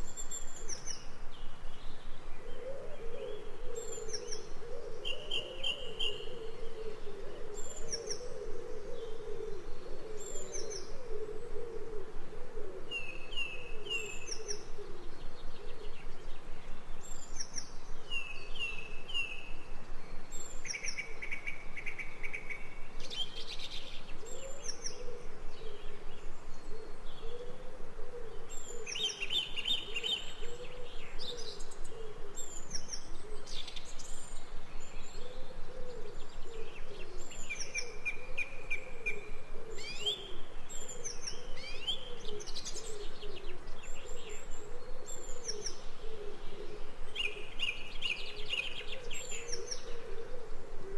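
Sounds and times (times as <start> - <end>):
birds chirping and calling: 28.4 - 50.6.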